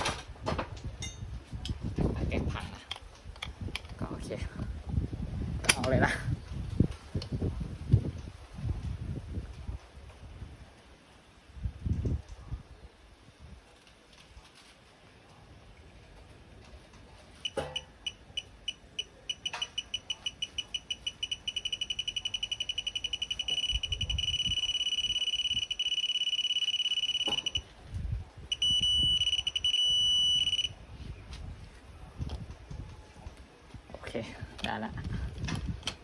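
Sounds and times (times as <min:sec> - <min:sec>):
continuous electronic tone: 0:17.4 - 0:27.7, 0:28.5 - 0:30.8
high-pitched electronic beeps: 0:17.5 - 0:27.7, 0:28.5 - 0:30.7.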